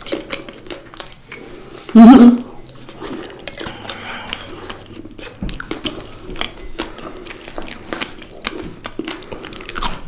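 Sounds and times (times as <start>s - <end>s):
person chewing crunchy food: 0.0s - 10.0s.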